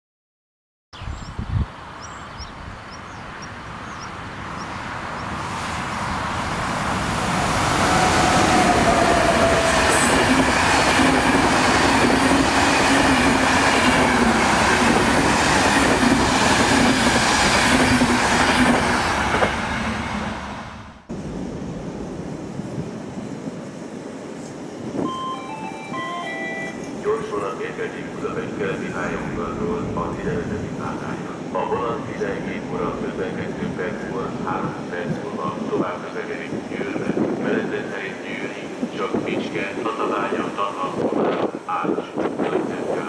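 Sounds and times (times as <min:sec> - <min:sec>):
passenger train passing: 0:01.7 - 0:43.0
clickety-clack of train wheels: 0:09.1 - 0:19.8.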